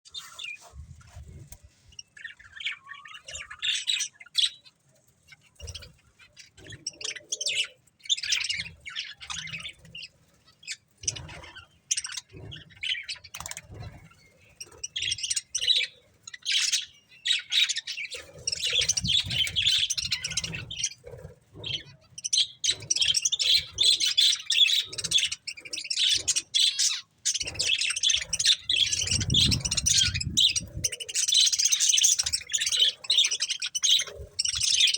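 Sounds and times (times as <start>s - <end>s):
budgerigars chirping and chattering: 0.1s - 34.9s.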